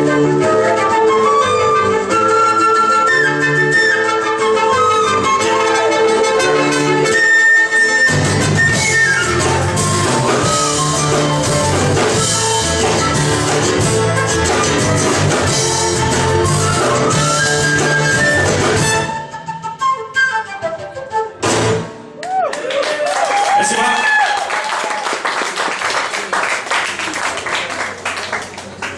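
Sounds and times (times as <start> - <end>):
instrumental band music: 0.0 - 22.2.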